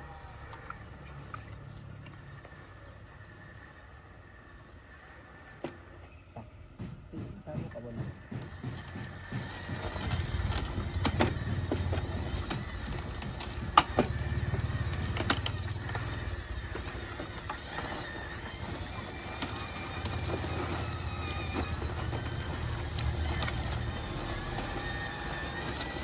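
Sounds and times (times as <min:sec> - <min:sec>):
motors buzzing drone: 0:00.0 - 0:06.2, 0:08.0 - 0:26.0
sharp clicks and knocks: 0:06.8 - 0:26.0.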